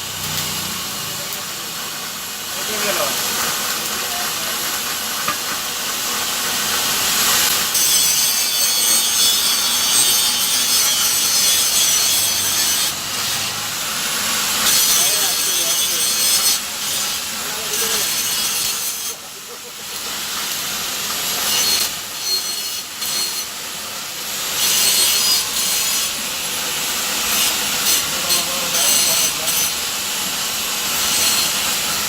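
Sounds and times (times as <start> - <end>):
tool rasping on metal: 6.6 - 13.6, 14.4 - 19.2, 21.2 - 23.6, 24.5 - 26.2, 27.2 - 29.9, 30.9 - 31.9.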